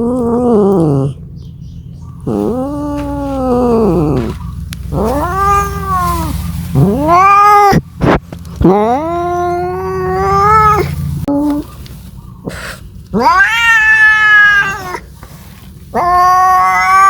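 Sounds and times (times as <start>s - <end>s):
cat yowling: 2.2s - 7.8s, 8.6s - 11.7s, 13.1s - 15.1s, 15.9s - 17.0s.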